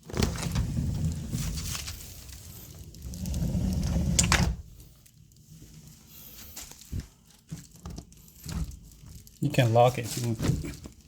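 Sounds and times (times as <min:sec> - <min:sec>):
sliding door rolling on track: 0:00.1 - 0:01.9, 0:02.9 - 0:04.7.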